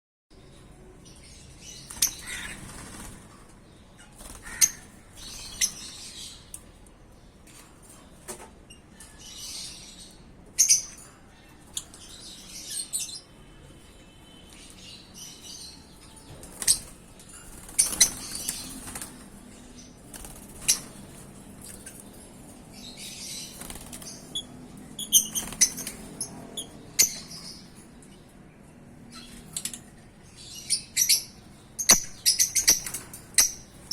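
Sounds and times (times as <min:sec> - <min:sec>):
lovebirds chirping and squeaking: 0:00.4 - 0:33.9
wings flapping and rustling: 0:01.8 - 0:06.1, 0:16.3 - 0:22.2, 0:23.4 - 0:24.4, 0:25.2 - 0:26.3.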